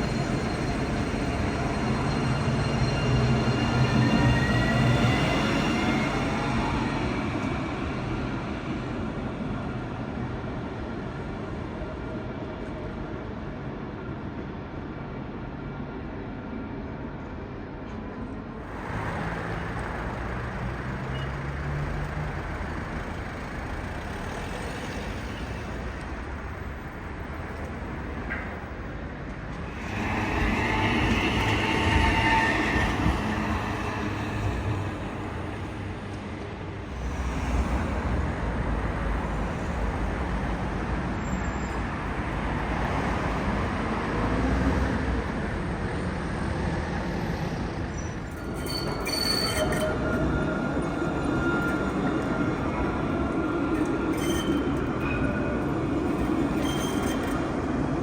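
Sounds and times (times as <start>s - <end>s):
high wheel squeal: 0.0s - 7.6s, 18.7s - 25.8s, 29.5s - 38.0s, 47.0s - 58.0s
tram rumbling over rails: 0.0s - 58.0s
thin whine: 29.7s - 36.1s.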